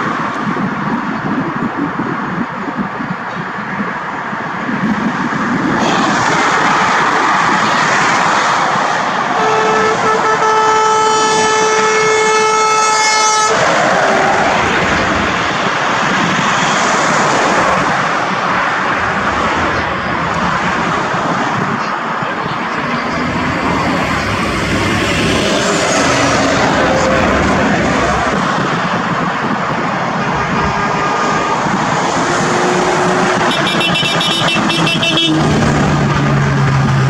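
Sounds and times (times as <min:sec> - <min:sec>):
truck horn blast: 0:09.3 - 0:13.7, 0:30.2 - 0:35.9
truck engine running loudly: 0:17.2 - 0:37.0.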